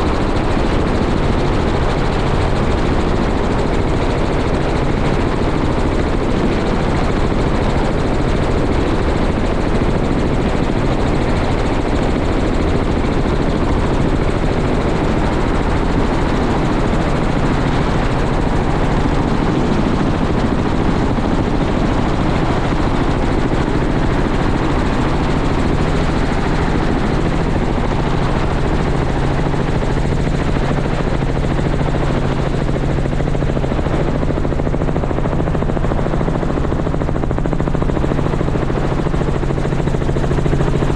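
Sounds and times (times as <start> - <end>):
helicopter running: 0.0 - 40.9.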